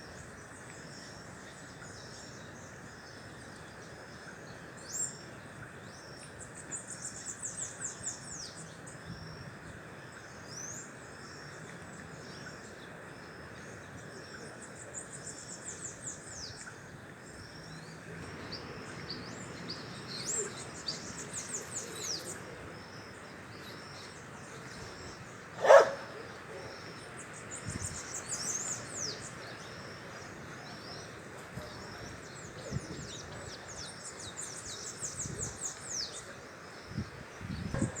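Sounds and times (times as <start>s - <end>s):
birds chirping: 10.2s - 38.0s.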